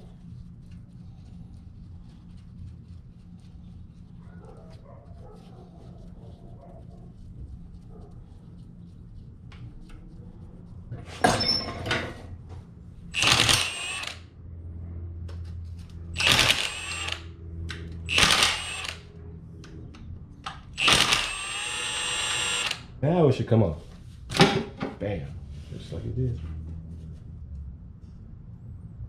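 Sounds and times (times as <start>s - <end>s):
faint low hum: 0.0s - 24.3s
power tool bursts on nut: 13.2s - 14.2s, 16.2s - 17.3s, 18.1s - 19.0s, 20.8s - 22.9s.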